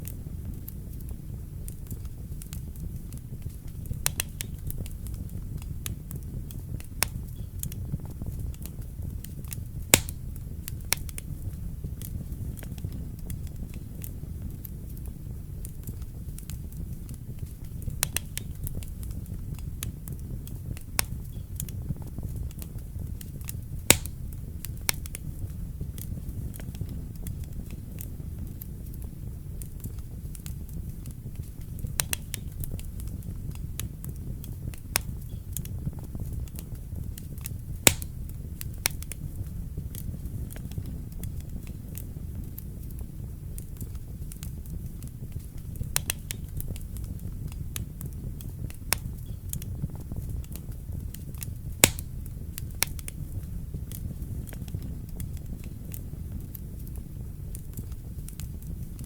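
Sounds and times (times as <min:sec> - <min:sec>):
fire crackling and popping: 0:00.0 - 0:59.0
fire flame rumbling: 0:00.0 - 0:59.0.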